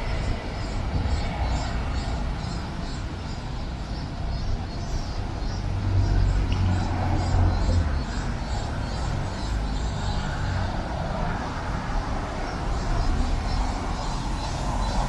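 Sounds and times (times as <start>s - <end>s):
road traffic hum: 0.0s - 15.0s
passing vehicle rumble: 5.5s - 15.0s.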